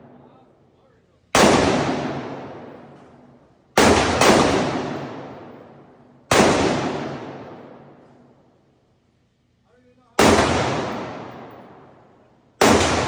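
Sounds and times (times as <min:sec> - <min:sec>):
echoing gunshots: 0:00.0 - 0:00.3, 0:01.3 - 0:08.3, 0:10.2 - 0:13.0.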